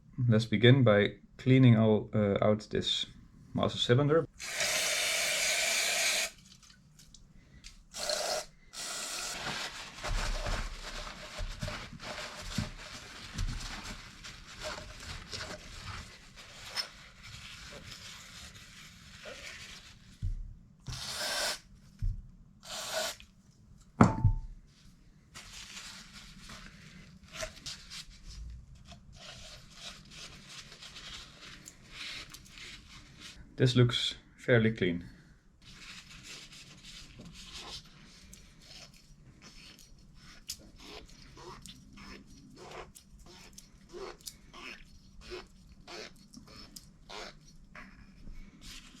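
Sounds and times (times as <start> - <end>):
sharp ringing knock: 24.0 - 24.5.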